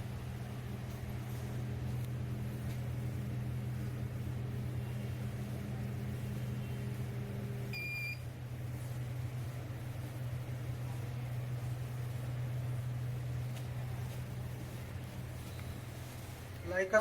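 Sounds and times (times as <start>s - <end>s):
microwave oven humming: 0.0s - 17.0s
short electronic beep: 7.8s - 8.2s.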